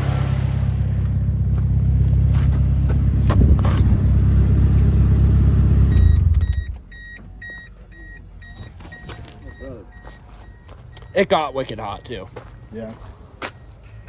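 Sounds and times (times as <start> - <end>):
car engine idling: 0.0 - 12.5
car warning chime beeping: 5.8 - 12.7.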